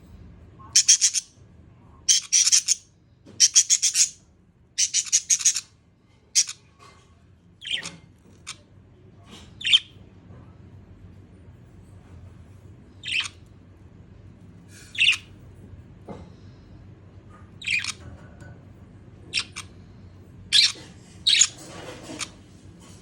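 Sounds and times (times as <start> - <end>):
budgerigar chirping: 0.8 - 1.3, 2.1 - 2.8, 3.4 - 4.2, 4.8 - 5.7, 6.4 - 6.6, 13.0 - 13.4, 14.9 - 15.3, 17.6 - 18.0, 20.5 - 21.5.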